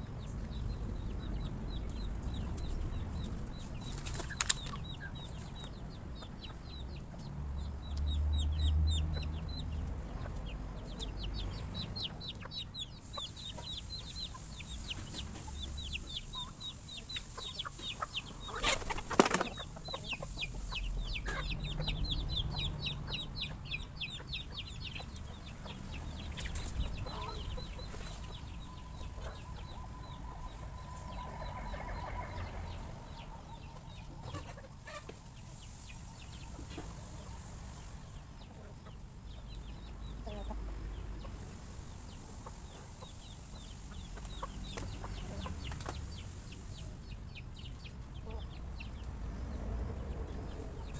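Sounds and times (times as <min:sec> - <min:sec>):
chickens clucking: 0:00.0 - 0:50.9
chicks peeping: 0:00.0 - 0:50.9
wings flapping: 0:03.8 - 0:04.8, 0:18.7 - 0:19.7.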